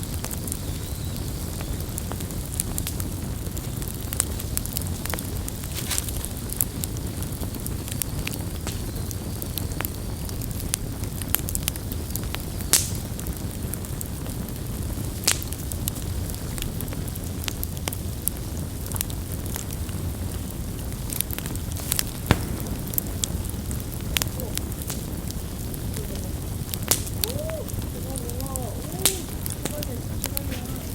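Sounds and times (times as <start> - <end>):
fire crackling and popping: 0.0 - 30.9
low rumble of flames: 0.0 - 30.9.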